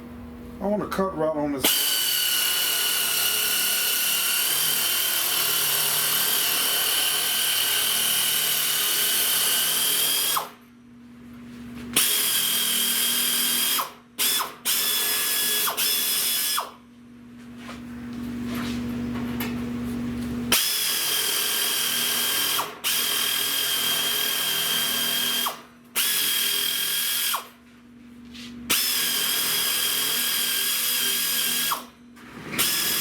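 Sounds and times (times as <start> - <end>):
power cutting tool whining: 1.6 - 10.6, 20.5 - 27.5, 28.7 - 33.0.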